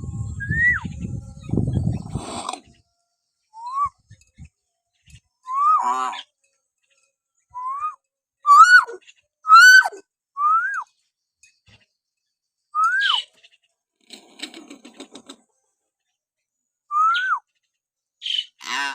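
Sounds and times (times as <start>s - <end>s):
myna whistling: 0.3s - 1.1s, 3.6s - 4.1s, 5.4s - 5.8s, 7.6s - 10.9s, 12.8s - 13.2s, 16.9s - 17.4s.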